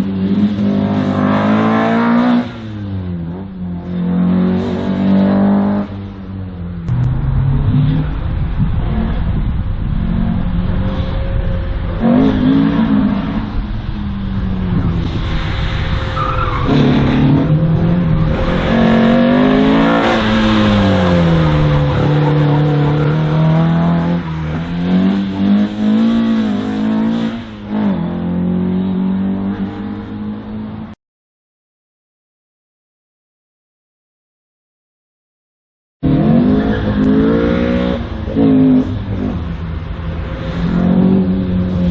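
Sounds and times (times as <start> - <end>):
race car engine revving: 6.8 - 30.9, 36.0 - 41.9.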